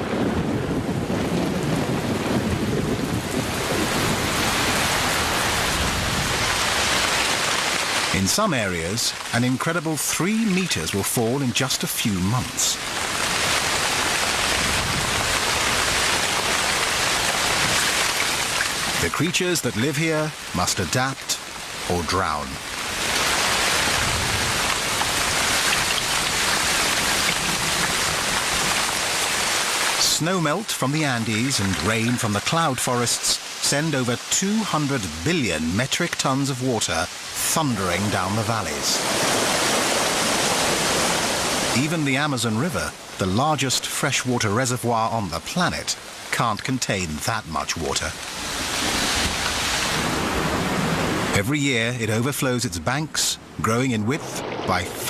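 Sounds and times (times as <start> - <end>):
low rumble of thunder: 0.0 - 4.6
heavy rain pouring: 0.0 - 55.0.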